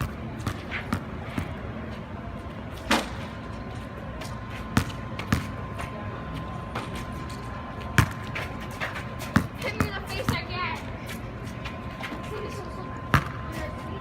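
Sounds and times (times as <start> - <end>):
basketball bouncing on wet court: 4.8 - 5.5, 8.0 - 8.3, 9.3 - 10.5, 13.1 - 13.4.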